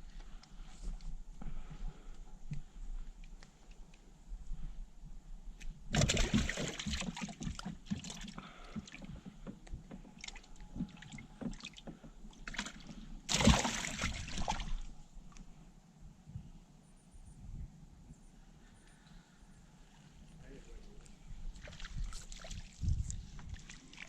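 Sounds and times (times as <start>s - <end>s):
gear knocking in a boat: 5.9s - 13.4s
water rushing splash: 6.0s - 7.3s, 13.3s - 14.8s.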